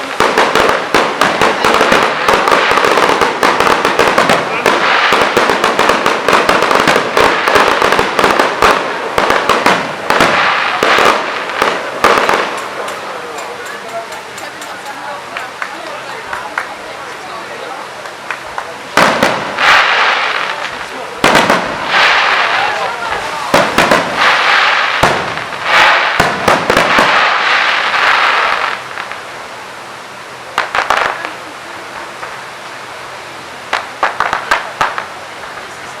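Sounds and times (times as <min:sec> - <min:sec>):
fireworks cracks and bangs: 0:00.0 - 0:36.0.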